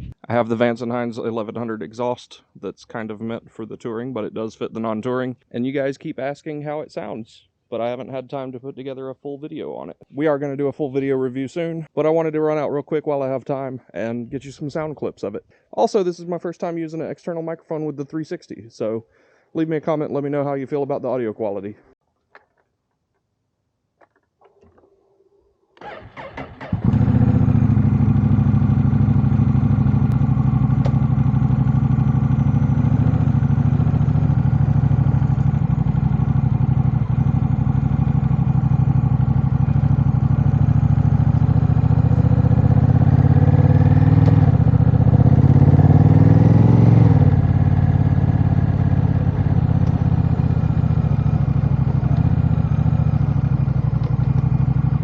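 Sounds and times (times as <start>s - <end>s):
motorcycle engine cranking: 24.0s - 25.2s, 25.8s - 27.9s
engine revving: 25.8s - 55.0s
motorcycle engine idling: 25.8s - 55.0s.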